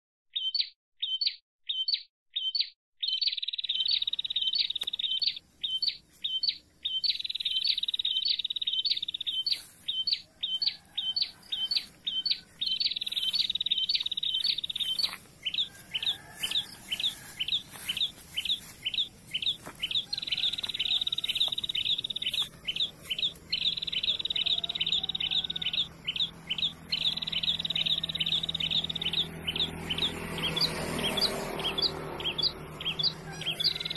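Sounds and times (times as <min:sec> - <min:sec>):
bird rapid sharp chirps: 0:00.4 - 0:33.9.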